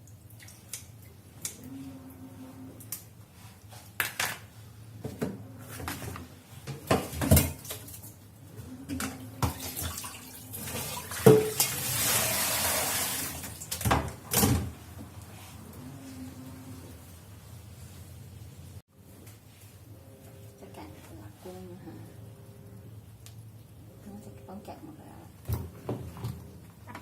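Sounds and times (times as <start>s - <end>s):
tap water running: 8.9s - 14.0s.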